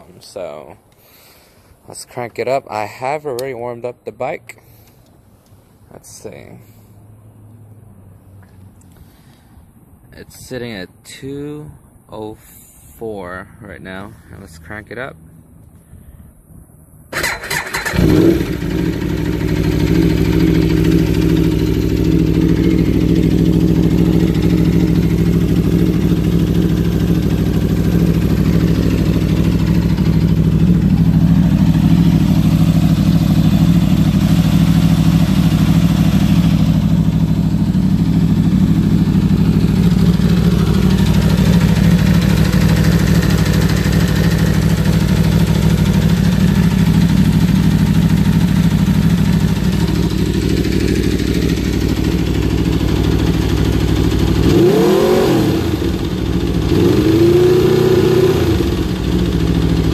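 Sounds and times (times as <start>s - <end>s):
motorcycle engine starting and idling: 17.1s - 59.9s.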